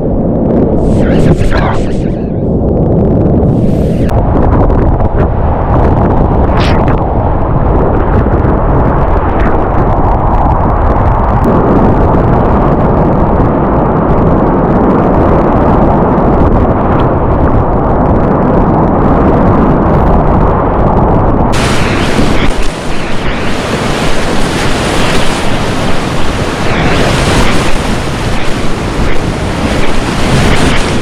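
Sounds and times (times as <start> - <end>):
whitewater river rushing: 21.6 - 31.0.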